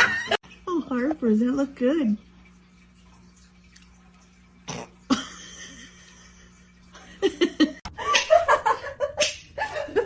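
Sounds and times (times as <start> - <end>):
faint steady hum: 0.0 - 10.0
person laughing: 5.1 - 10.0.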